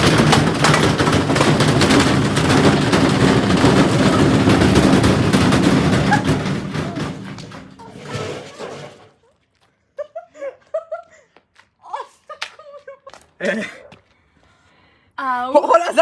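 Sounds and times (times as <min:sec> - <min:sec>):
bricks clattering in washing machine drum: 0:00.0 - 0:09.2.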